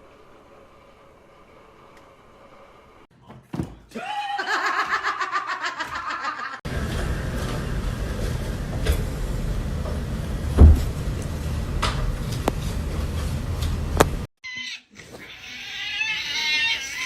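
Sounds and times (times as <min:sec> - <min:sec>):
steady noisy rumble: 0:06.7 - 0:14.3
loud thump: 0:10.6 - 0:10.9.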